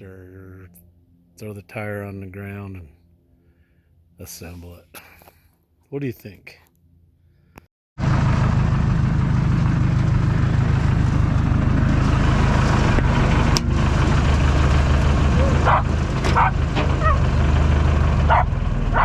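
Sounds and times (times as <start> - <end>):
engine idling: 8.0 - 19.0.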